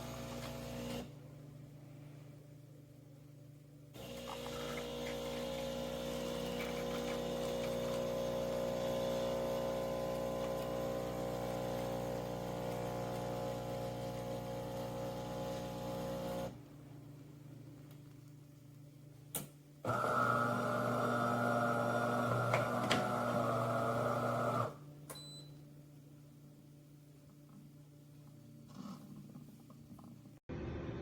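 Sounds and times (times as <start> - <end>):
espresso machine pumping hum: 0.0 - 1.1, 4.0 - 16.6, 19.9 - 24.8.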